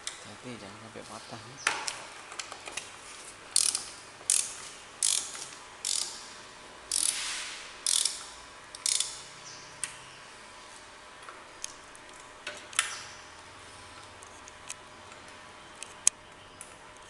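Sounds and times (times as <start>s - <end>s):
ratchet wrench rasping: 3.6s - 6.3s, 6.9s - 7.2s, 7.8s - 9.3s.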